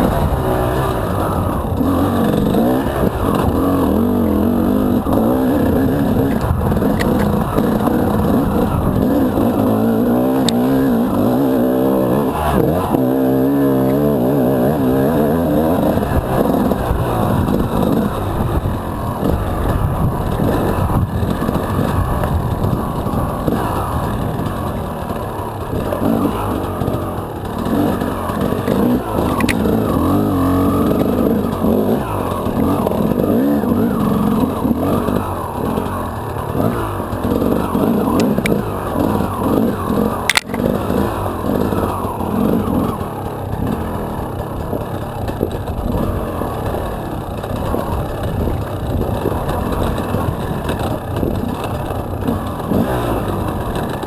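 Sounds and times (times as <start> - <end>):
dirt bike engine revving: 0.0 - 54.0
sharp click: 40.2 - 40.7.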